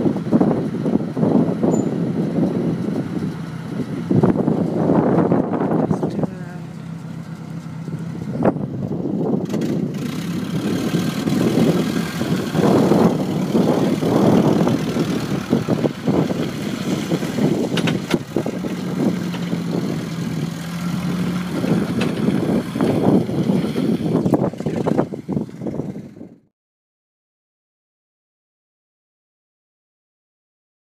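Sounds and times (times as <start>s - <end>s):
forklift engine running: 0.0s - 26.4s.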